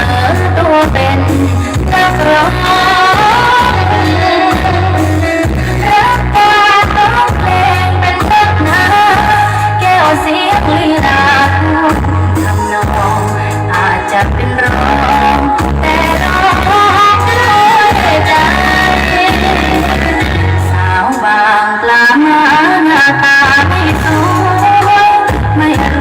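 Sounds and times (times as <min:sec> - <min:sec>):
heavy bass notes pulsing: 0:00.0 - 0:21.3, 0:23.4 - 0:26.0
pop song over sound system: 0:00.0 - 0:26.0.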